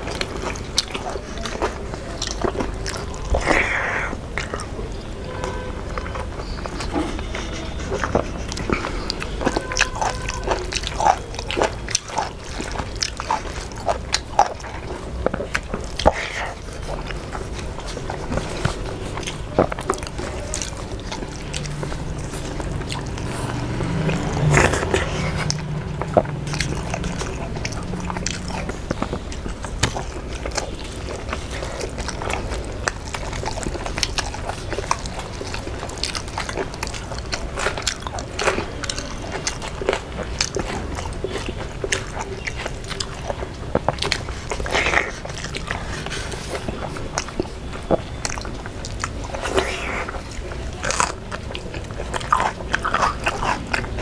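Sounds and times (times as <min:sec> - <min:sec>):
people chewing food: 0:00.0 - 0:54.0.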